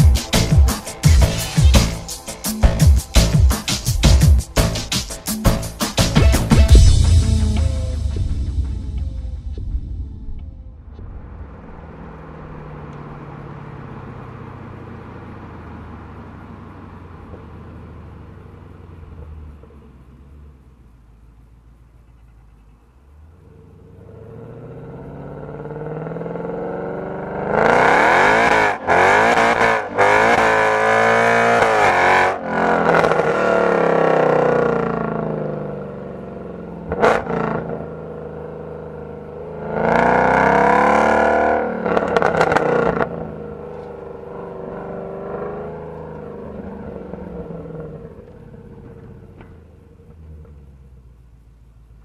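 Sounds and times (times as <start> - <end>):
car engine accelerating hard: 5.5 - 21.4, 22.0 - 52.0.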